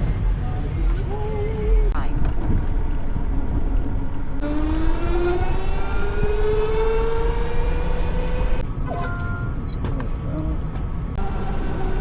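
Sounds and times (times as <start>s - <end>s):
wind rumble on microphone: 0.1s - 8.7s
motorcycle engine accelerating: 2.0s - 8.6s, 11.2s - 12.0s.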